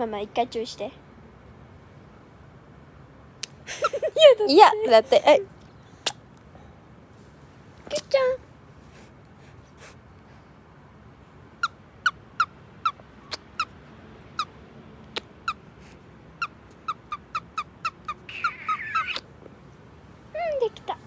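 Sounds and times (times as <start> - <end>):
bird chirping: 15.1 - 19.2
bird warbling call: 15.1 - 19.3.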